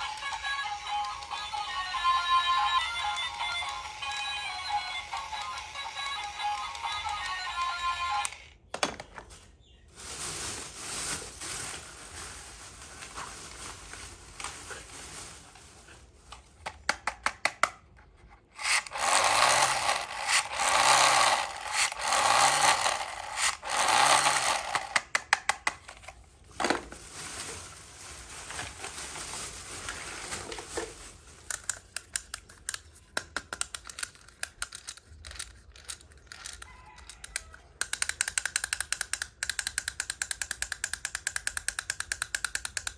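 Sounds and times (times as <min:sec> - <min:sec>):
toy pieces rubbing and scraping: 0:18.4 - 0:25.0, 0:31.5 - 0:42.9
quick clicks of toy pieces: 0:31.4 - 0:42.9.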